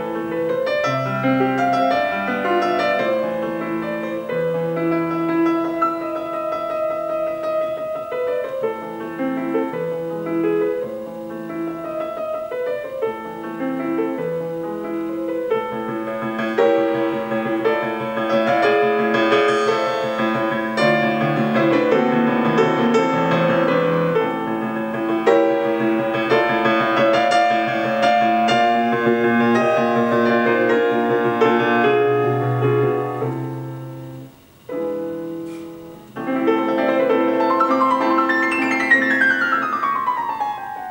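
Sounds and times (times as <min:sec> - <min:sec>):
piano music through small speaker: 0:00.0 - 0:40.9.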